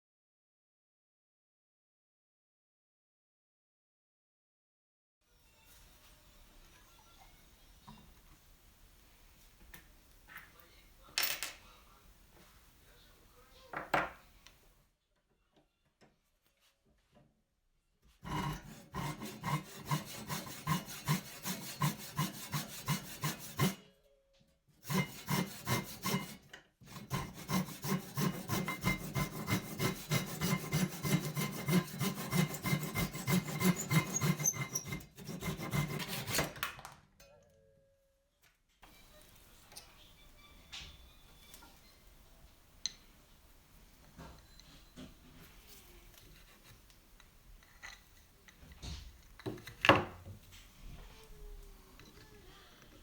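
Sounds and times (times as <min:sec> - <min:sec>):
hand sanding strokes: 0:18.2 - 0:23.8, 0:24.8 - 0:36.4.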